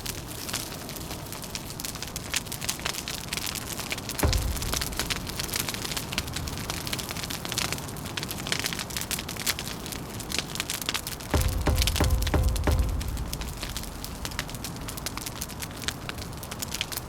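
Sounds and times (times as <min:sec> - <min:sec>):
wood fire crackling: 0:04.0 - 0:07.4, 0:11.3 - 0:17.0.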